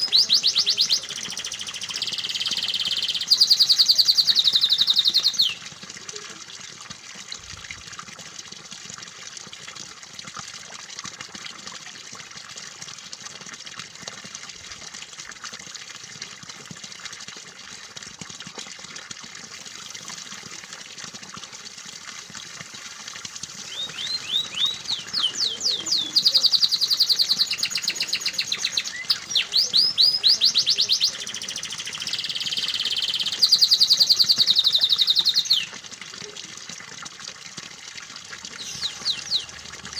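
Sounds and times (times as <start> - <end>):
canary singing in trills: 0.0 - 5.6, 23.6 - 35.7, 38.6 - 39.6
water trickling: 0.0 - 39.9.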